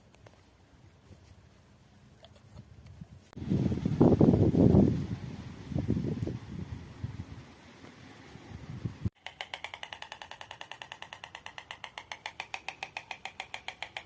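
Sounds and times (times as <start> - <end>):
soft wind rustle: 0.0 - 9.2
magpie rattling chatter: 9.2 - 14.0.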